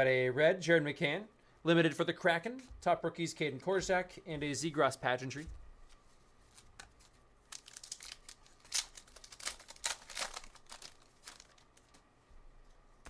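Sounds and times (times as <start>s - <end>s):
foil wrapper tearing and crinkling: 6.5s - 12.0s.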